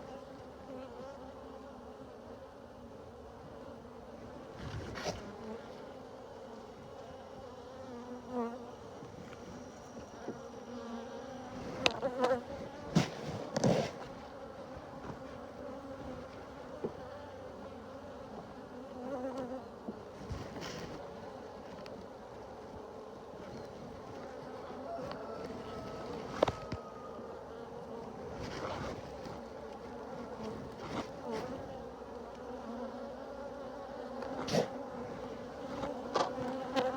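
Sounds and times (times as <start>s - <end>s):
honeybees buzzing: 0.0s - 36.9s
rustling: 28.2s - 31.7s.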